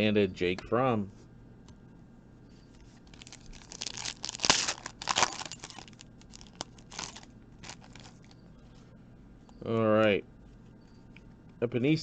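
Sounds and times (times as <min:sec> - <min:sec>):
foil pack tearing and crinkling: 0:03.0 - 0:08.3.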